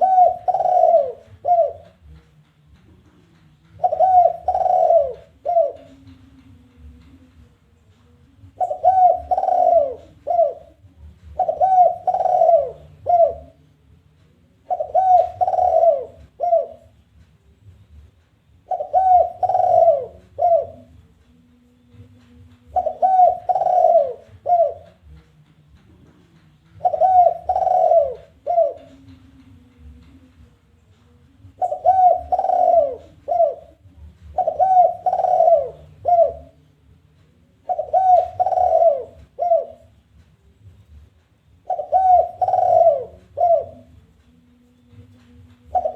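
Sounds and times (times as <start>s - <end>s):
dove cooing: 0.0s - 2.2s, 3.7s - 7.2s, 8.4s - 13.8s, 14.4s - 17.0s, 18.6s - 21.0s, 21.9s - 25.2s, 26.7s - 30.3s, 31.4s - 36.7s, 37.4s - 40.0s, 41.6s - 44.2s, 44.9s - 45.9s.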